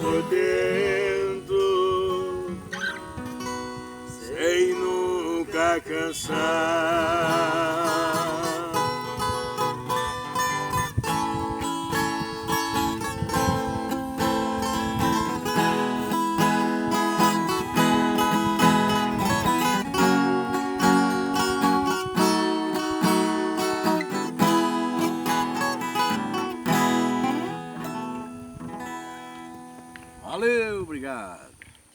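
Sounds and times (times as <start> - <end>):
plucked guitar notes: 8.6 - 30.1.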